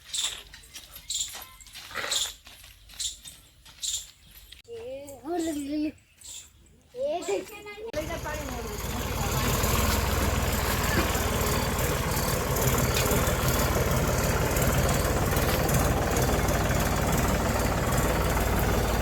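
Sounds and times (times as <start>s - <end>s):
tractor engine idling: 7.9s - 19.0s.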